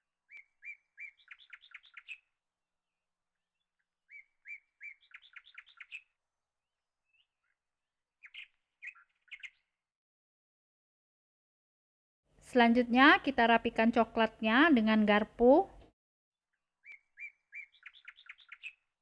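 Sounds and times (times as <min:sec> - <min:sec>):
small bird singing faintly: 0:00.2 - 0:02.4, 0:03.3 - 0:06.2, 0:07.0 - 0:09.8, 0:16.6 - 0:19.0.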